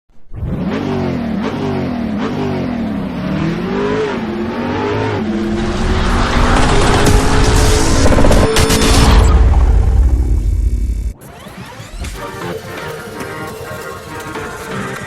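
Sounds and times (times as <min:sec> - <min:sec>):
car engine revving: 0:00.3 - 0:15.0.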